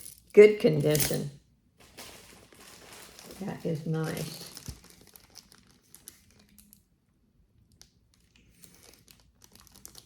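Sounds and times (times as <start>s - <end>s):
faint clicks and rustles: 1.8s - 7.0s, 7.6s - 10.0s.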